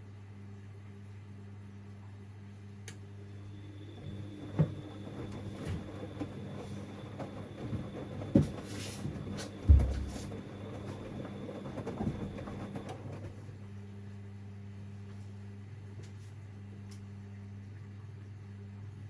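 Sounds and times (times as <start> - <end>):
faint motor whine: 0.0 - 17.8
laundry thudding in drum: 9.6 - 10.3.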